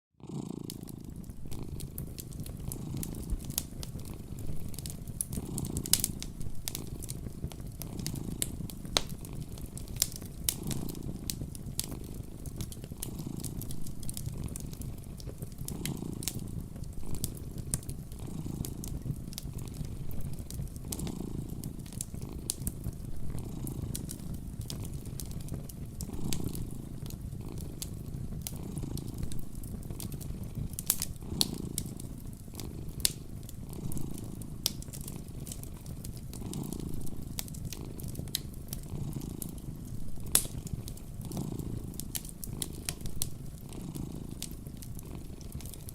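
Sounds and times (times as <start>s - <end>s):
cat purring: 0.2s - 45.9s
fireplace fire crackling and popping: 0.2s - 45.9s.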